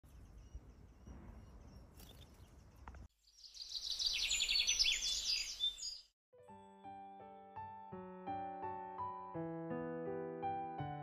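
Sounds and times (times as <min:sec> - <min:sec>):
bird singing trilled phrases: 0:00.1 - 0:06.1.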